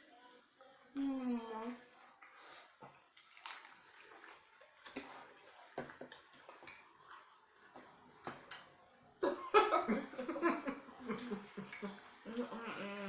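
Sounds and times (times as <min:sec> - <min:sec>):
eating clicks and mouth smacks: 0:02.2 - 0:07.3, 0:11.2 - 0:12.0.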